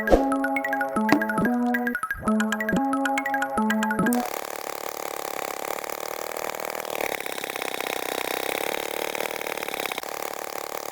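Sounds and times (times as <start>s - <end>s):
small motor buzzing: 4.1s - 10.9s.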